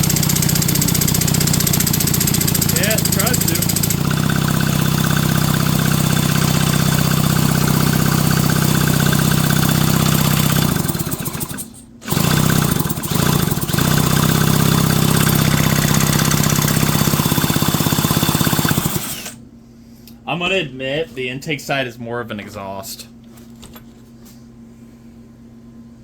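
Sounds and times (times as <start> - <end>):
electric starter motor spinning engine: 0.0 - 19.4.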